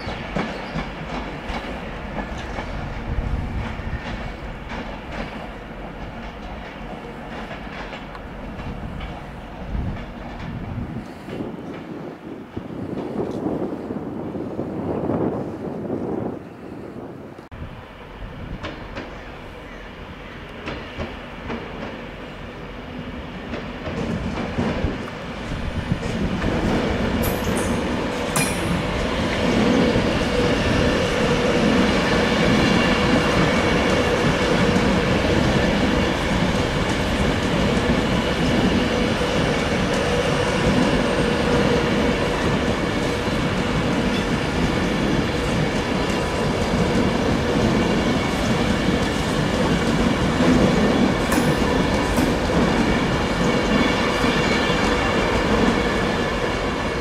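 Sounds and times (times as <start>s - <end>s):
train rumbling past: 0.0s - 57.0s.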